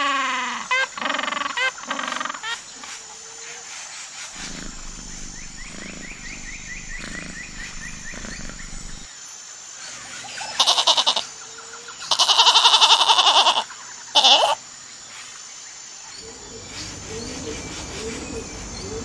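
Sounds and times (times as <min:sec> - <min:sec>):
low rumble: 0:04.4 - 0:09.1.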